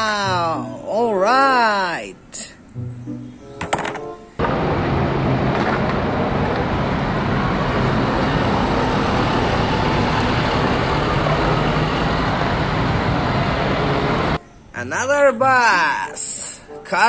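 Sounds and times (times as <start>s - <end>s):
road traffic noise: 2.6s - 14.7s
bus engine: 4.4s - 14.4s.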